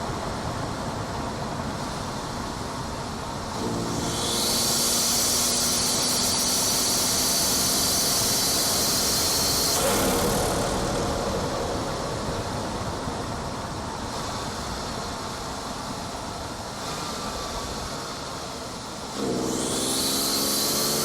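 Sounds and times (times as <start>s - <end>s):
car engine under throttle: 0.2s - 21.0s
intake hiss and turbo whoosh: 3.4s - 21.0s.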